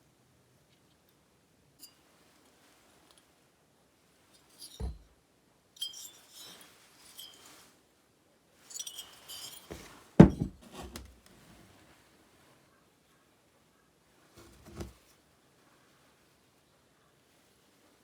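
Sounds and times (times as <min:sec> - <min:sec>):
small hard objects clinking: 0:08.6 - 0:10.0
dull thud: 0:10.2 - 0:10.6.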